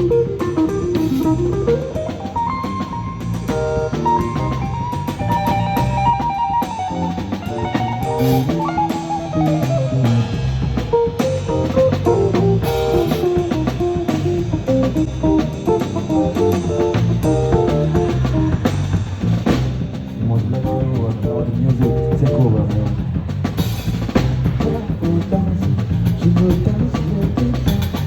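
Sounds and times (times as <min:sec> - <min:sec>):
guitar melody: 0:00.0 - 0:19.3
bass guitar: 0:00.0 - 0:28.0
drum kit beat: 0:00.0 - 0:28.0.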